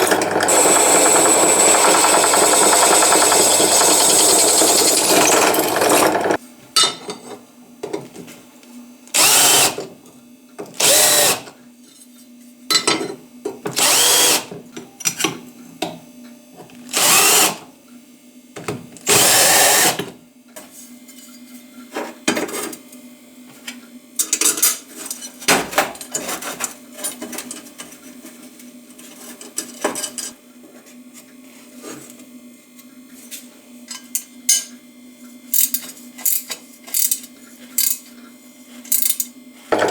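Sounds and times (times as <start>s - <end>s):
power tool working steel: 0.0s - 6.4s, 9.2s - 9.8s, 10.8s - 11.5s, 13.8s - 14.4s, 16.9s - 17.6s.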